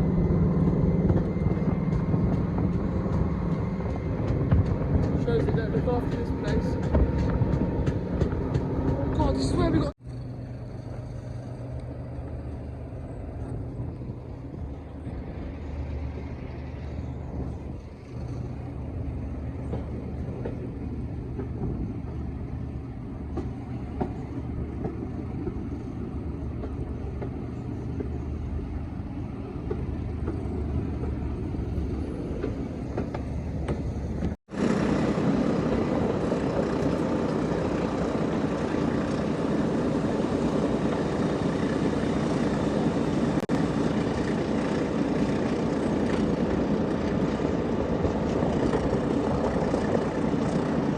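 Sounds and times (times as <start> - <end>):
diesel train engine drone: 0.0 - 50.9.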